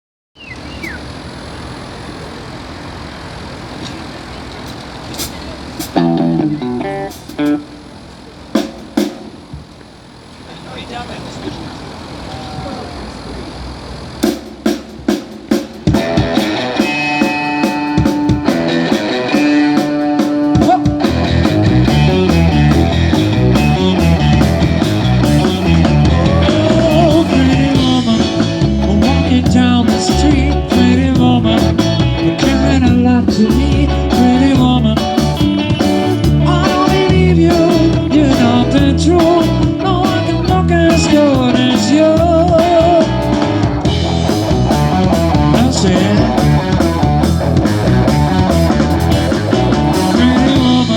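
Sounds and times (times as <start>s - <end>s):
drums: 3.8s - 9.8s, 14.1s - 50.9s
bass guitar: 5.8s - 7.7s, 15.8s - 50.9s
lead electric guitar: 5.9s - 7.7s, 15.9s - 50.9s.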